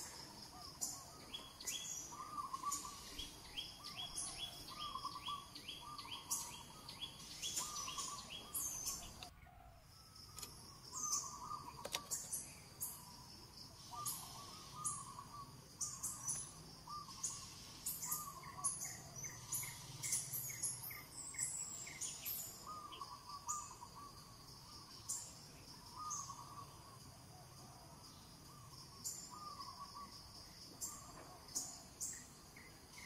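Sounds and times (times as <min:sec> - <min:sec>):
bird warbling call: 0:00.0 - 0:09.3, 0:13.8 - 0:20.8
birds chirping: 0:00.0 - 0:09.3, 0:10.2 - 0:27.0.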